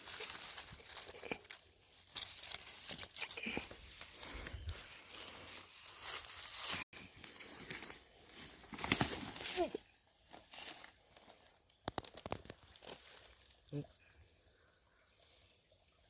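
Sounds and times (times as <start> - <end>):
footsteps crunching dry leaves: 0.0 - 11.0.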